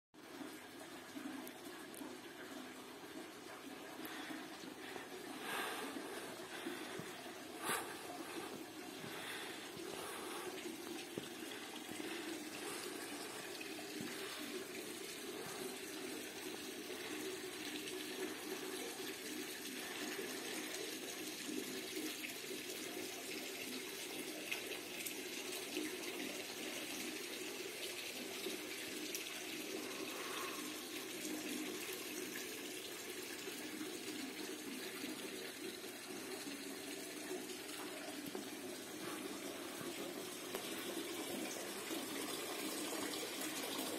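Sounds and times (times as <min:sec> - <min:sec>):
fountain water pouring into basin: 0:00.2 - 0:43.9.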